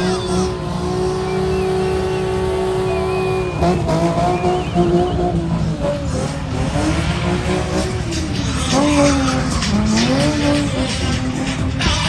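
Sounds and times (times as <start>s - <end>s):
race car engines revving: 0.0s - 12.0s
tires squealing: 0.0s - 12.0s.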